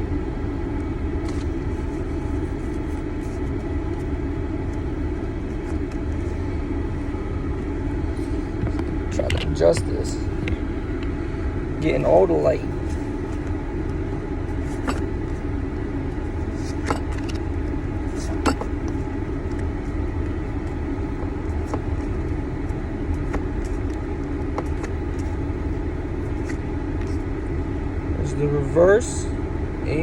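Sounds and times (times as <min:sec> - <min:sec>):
car engine rumble in cabin: 0:00.0 - 0:30.0.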